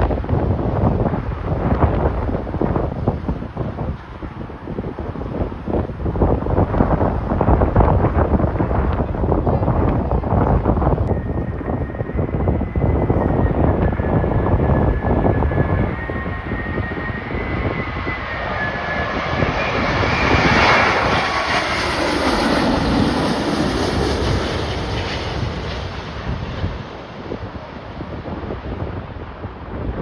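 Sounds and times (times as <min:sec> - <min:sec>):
jet airliner passing: 0:00.0 - 0:30.0
wind buffeting microphone: 0:00.0 - 0:30.0.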